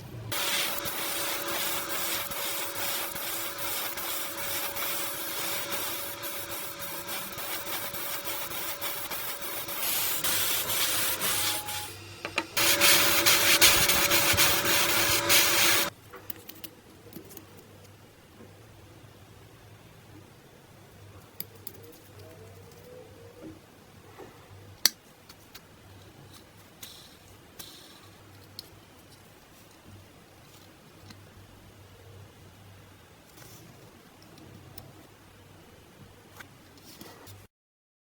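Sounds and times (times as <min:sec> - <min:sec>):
power sander sanding: 0:00.3 - 0:15.9.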